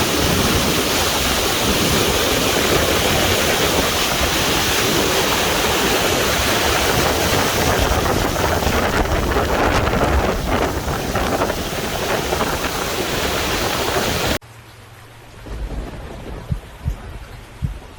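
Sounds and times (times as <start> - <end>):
river water rushing: 0.0 - 15.5
faint low thumps: 15.4 - 17.9.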